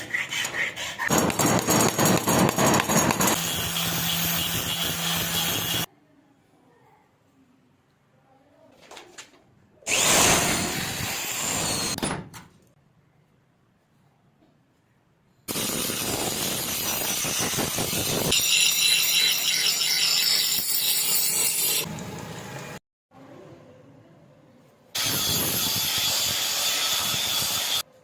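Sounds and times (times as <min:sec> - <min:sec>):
power tool grinding knife blade: 0:01.1 - 0:05.9.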